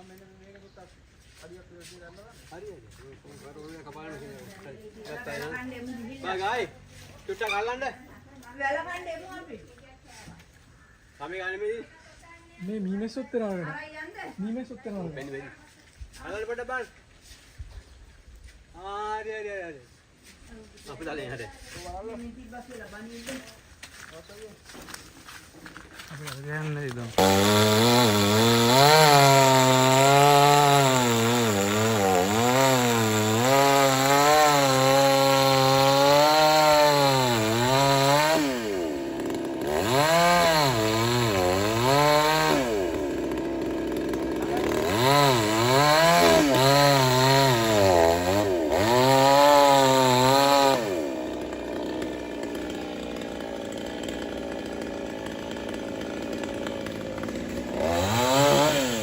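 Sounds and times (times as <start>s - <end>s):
chainsaw cutting wood: 24.8s - 59.0s.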